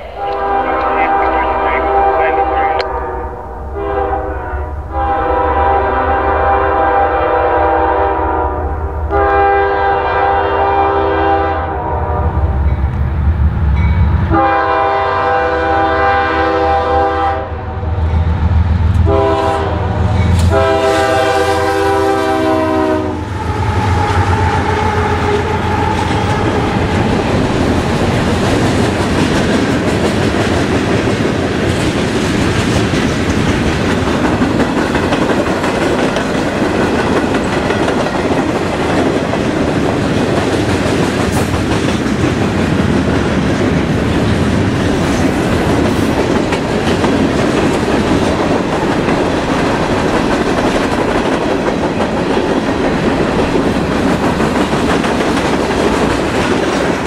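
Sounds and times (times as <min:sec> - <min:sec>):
locomotive rumble: 0:00.0 - 0:07.0
train horn blasts: 0:00.0 - 0:12.6, 0:14.3 - 0:17.9, 0:19.0 - 0:26.8.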